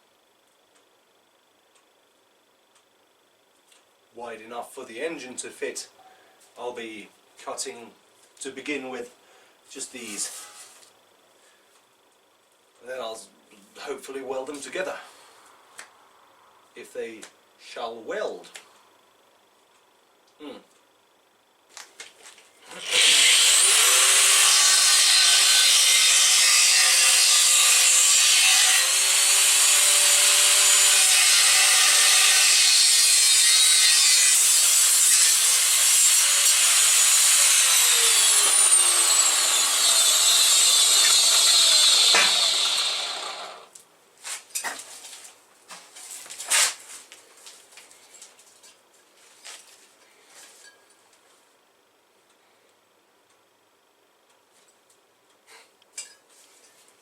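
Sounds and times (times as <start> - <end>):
angle grinder cutting steel: 22.7 - 43.7.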